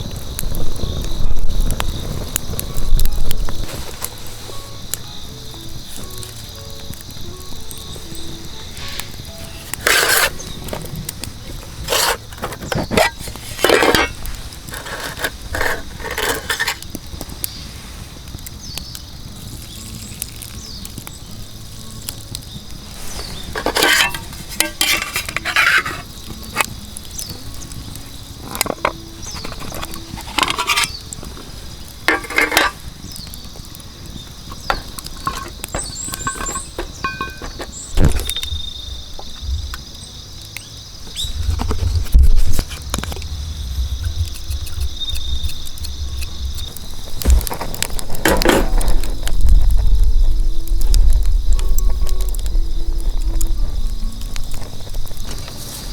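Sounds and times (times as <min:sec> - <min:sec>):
metal cookware clinking: 0:08.8 - 0:10.5, 0:11.8 - 0:16.8, 0:23.2 - 0:26.7, 0:28.4 - 0:31.0, 0:32.1 - 0:32.9, 0:34.6 - 0:38.3.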